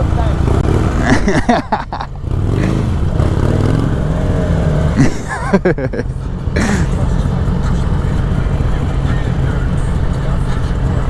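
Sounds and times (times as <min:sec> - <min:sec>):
person's voice: 0:00.0 - 0:02.1, 0:05.0 - 0:11.0
vehicle engines rumbling: 0:00.0 - 0:11.0.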